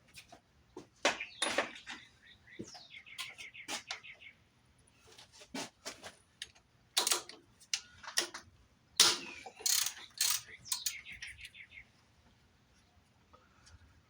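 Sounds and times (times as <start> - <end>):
parts and tools knocking: 9.0 - 11.1.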